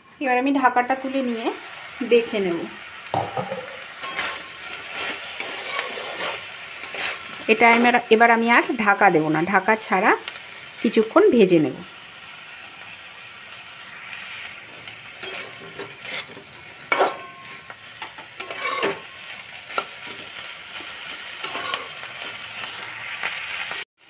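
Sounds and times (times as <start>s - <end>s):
vegetables sizzling in oil: 0.0s - 23.9s
metal spatula scraping pan: 3.2s - 8.8s, 15.2s - 22.0s.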